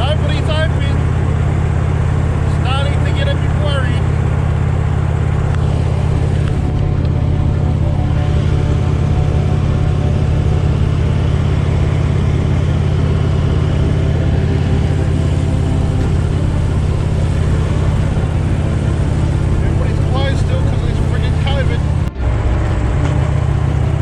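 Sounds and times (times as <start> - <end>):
motorcycle engine cruising: 0.0 - 24.0.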